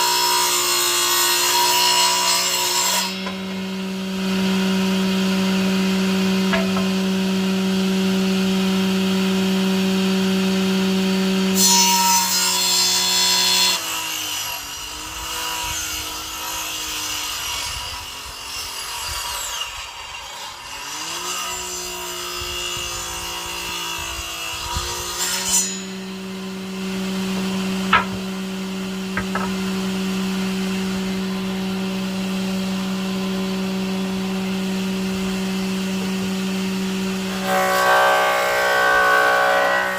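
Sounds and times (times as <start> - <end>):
power tool cutting wood: 0.0 - 39.9
sharp knocks: 6.5 - 7.1, 27.9 - 28.4, 29.1 - 29.7
power tool motor running: 21.0 - 37.3.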